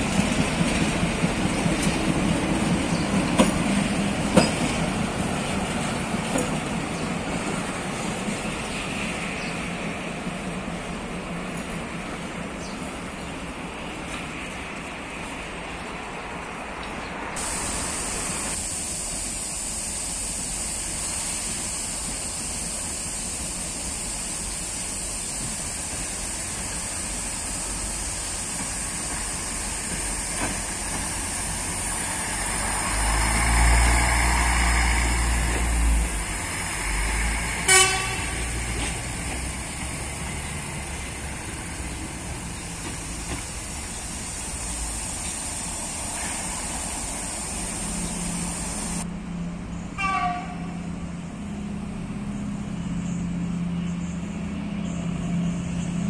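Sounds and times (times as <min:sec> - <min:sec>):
low rumble of train: 0:00.0 - 0:56.0
train horn toot: 0:37.6 - 0:38.9, 0:50.0 - 0:50.9.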